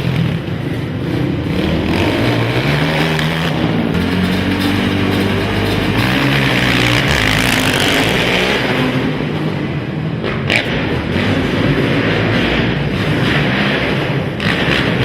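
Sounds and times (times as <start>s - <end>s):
quad engines revving: 0.0s - 15.0s.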